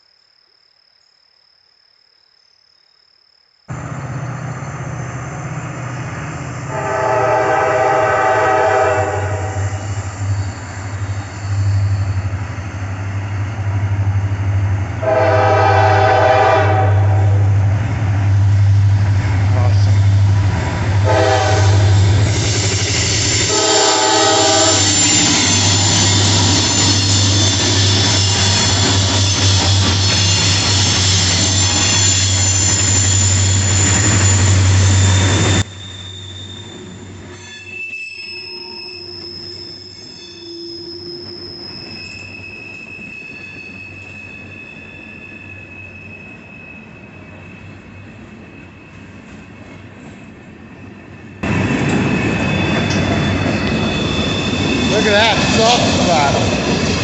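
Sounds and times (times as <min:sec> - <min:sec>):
freight train wheels rumbling: 0:03.7 - 0:37.7, 0:40.8 - 0:57.0
wheel squeal: 0:09.5 - 0:13.4, 0:22.3 - 0:50.0, 0:51.9 - 0:57.0.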